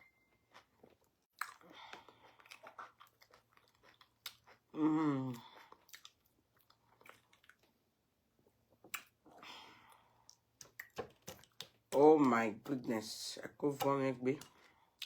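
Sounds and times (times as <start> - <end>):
wet chewing and smacking: 0.4 - 7.8, 8.7 - 12.8
person humming mmm: 4.8 - 5.4.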